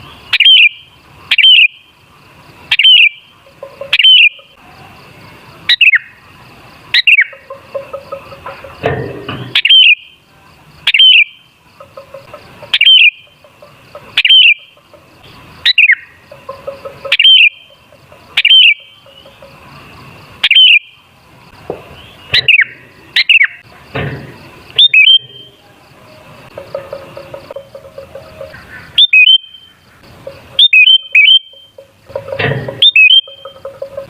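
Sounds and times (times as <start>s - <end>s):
bird bubbling whistled calls: 3.8s - 4.6s, 9.6s - 10.1s, 10.9s - 11.4s, 12.7s - 13.2s, 14.2s - 14.7s, 16.7s - 17.7s, 18.4s - 19.3s, 20.4s - 20.9s, 24.8s - 25.5s, 29.0s - 29.7s, 30.6s - 31.8s, 32.8s - 34.0s.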